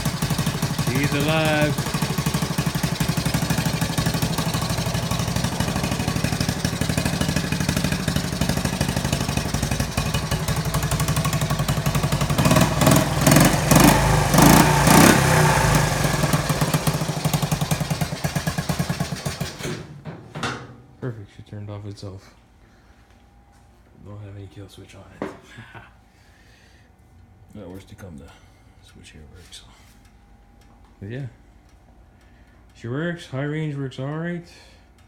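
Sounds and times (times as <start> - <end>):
small engine running and revving: 0.0 - 19.6.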